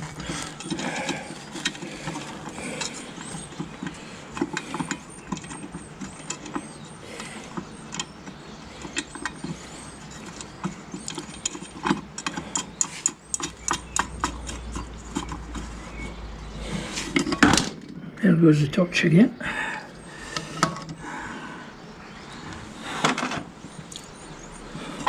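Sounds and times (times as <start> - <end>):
spanner clicking on metal bolts: 0.0 - 15.8.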